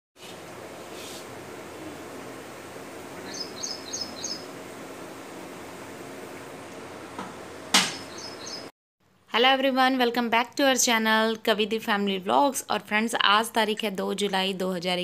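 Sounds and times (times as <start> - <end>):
outdoor background noise: 0.2 - 15.0
small bird chirping: 3.2 - 4.5, 7.9 - 8.7
sharp knock: 7.2 - 8.1.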